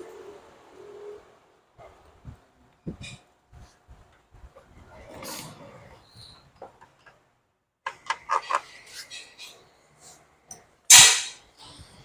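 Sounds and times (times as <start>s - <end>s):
loud metal clatter: 10.9s - 11.4s.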